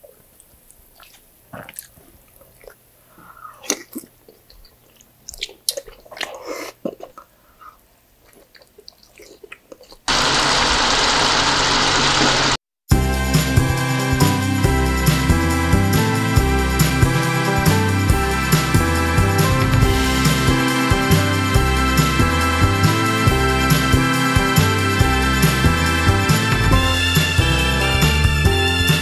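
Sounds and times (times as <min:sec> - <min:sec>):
wet chewing and lip smacks: 0:00.0 - 0:10.1
loud steady hiss: 0:10.1 - 0:12.6
music: 0:12.9 - 0:29.0.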